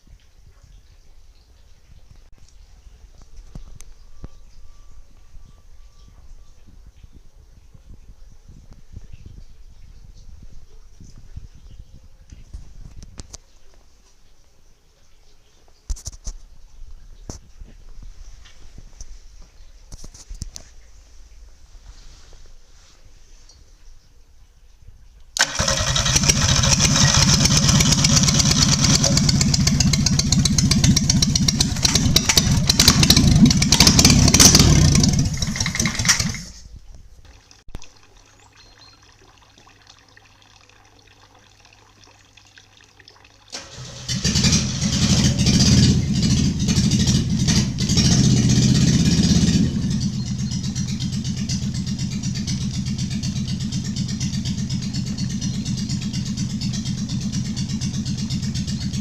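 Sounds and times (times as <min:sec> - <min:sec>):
car engine running and idling: 0:25.4 - 0:36.6, 0:43.6 - 0:59.0.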